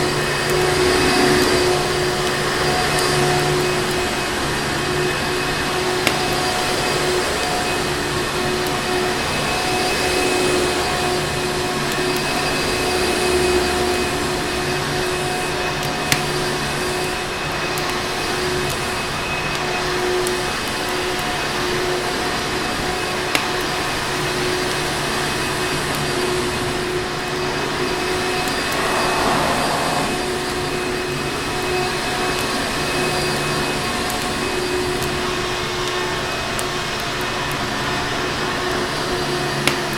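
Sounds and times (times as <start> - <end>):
vacuum cleaner running: 23.9 - 32.5.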